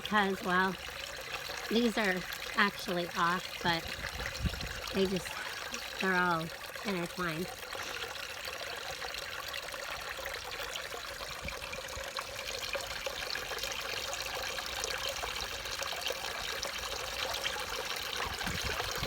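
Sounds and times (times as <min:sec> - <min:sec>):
pond waterfall trickling: 0:00.0 - 0:19.0
wind rumbling on microphone: 0:03.8 - 0:05.4, 0:18.2 - 0:19.0.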